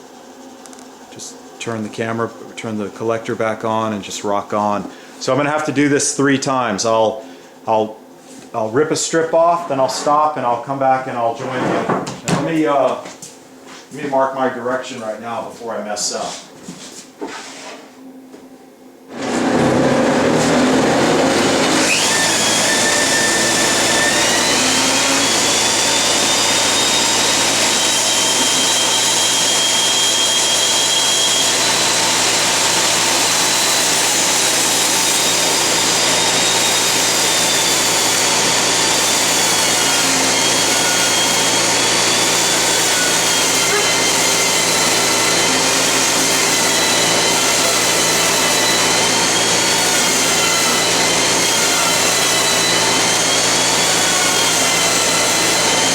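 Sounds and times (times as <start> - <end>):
dust collector running: 0.0 - 11.6, 19.1 - 55.9
bandsaw ripping wood: 19.1 - 55.9.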